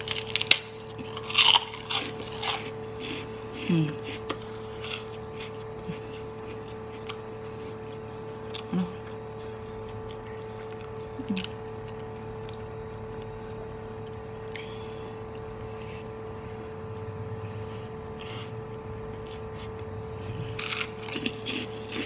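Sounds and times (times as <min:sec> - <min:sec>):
electrical hum: 0:00.0 - 0:22.0
person humming mm: 0:03.5 - 0:04.2, 0:08.6 - 0:09.1.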